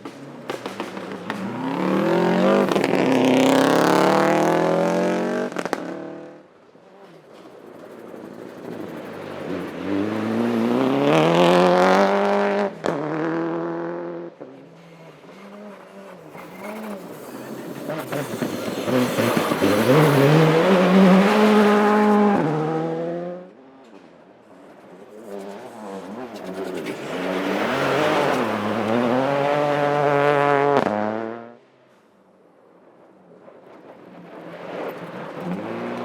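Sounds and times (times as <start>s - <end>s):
sharp crack: 0.0s - 2.0s
rally car engines at full throttle: 0.0s - 32.0s, 32.8s - 36.0s.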